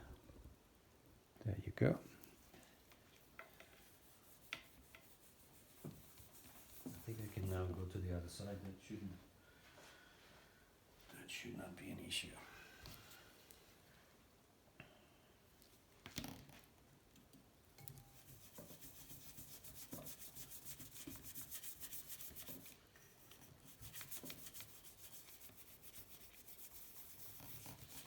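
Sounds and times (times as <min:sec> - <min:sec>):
faint quick rubbing strokes: 0:03.8 - 0:07.8, 0:18.2 - 0:28.0.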